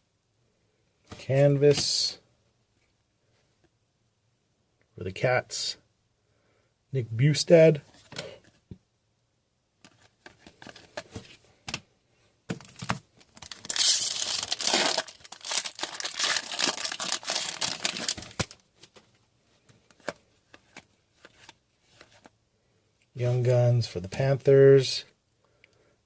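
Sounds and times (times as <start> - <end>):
foil wrapper crinkling: 13.2 - 18.6.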